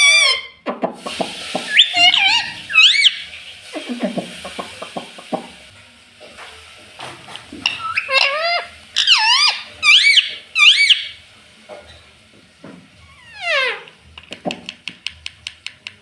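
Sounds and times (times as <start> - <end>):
parrot squawking: 0.0 - 0.6, 1.6 - 5.2, 7.6 - 11.2, 13.0 - 14.0.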